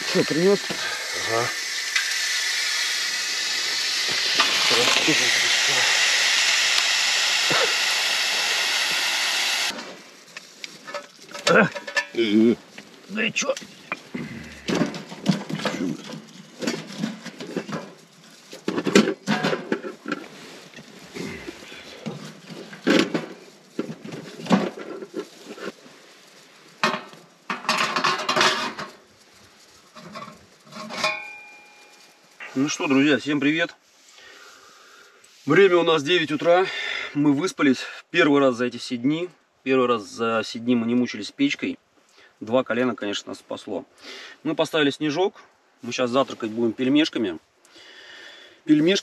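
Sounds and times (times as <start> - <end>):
fire crackles: 0.0 - 37.3
campfire rushing hiss: 0.0 - 37.9, 43.9 - 44.5, 45.8 - 49.0
metal dishes clinking: 11.4 - 12.2, 30.8 - 31.6
cutlery clattering rattle: 26.9 - 29.0, 30.1 - 31.5.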